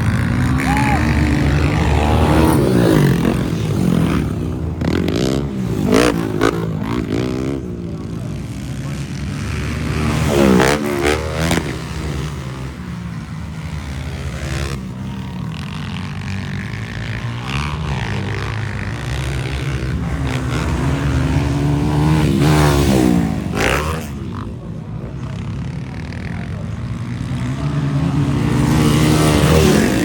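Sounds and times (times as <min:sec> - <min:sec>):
motorcycle engines revving: 0:00.0 - 0:30.0.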